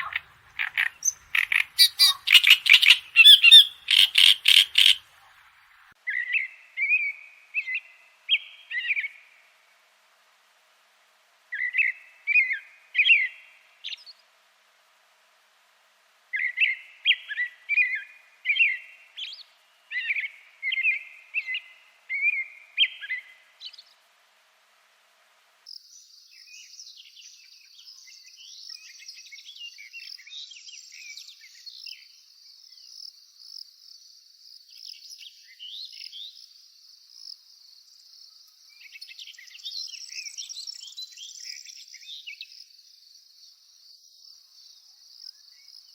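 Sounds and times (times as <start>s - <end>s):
songbird whistling: 0.0s - 5.0s
birds chirping: 0.0s - 9.1s.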